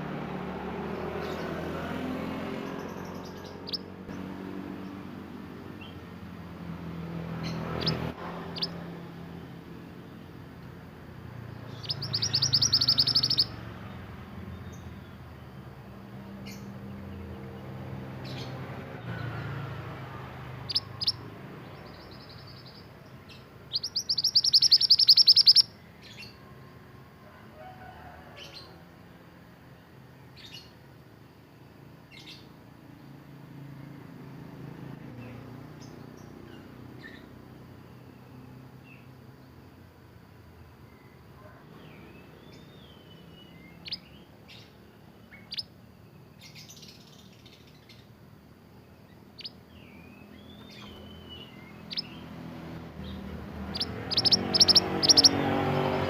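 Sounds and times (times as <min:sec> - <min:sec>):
songbird rapid trills: 0:02.5 - 0:15.3, 0:20.4 - 0:26.4, 0:42.5 - 0:48.2, 0:48.8 - 0:56.0
short high bird chirps: 0:11.7 - 0:13.6, 0:23.7 - 0:25.7, 0:49.4 - 0:52.2, 0:53.0 - 0:55.4.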